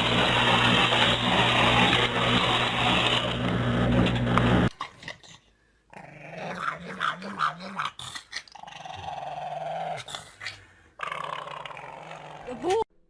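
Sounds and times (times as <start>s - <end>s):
dog growling: 4.7s - 12.8s.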